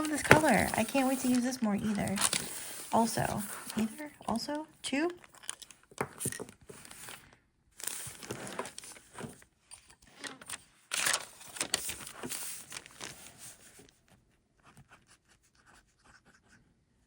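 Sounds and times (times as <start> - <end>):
pen scratching on paper: 0.0 - 4.0
paper rustling: 0.0 - 4.4, 5.0 - 15.0.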